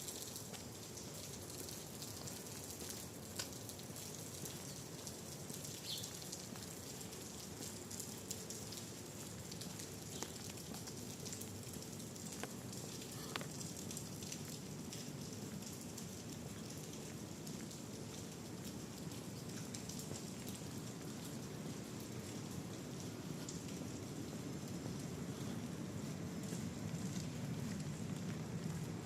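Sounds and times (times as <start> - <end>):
rain falling: 0.0 - 29.0
drip ticks: 0.1 - 21.4.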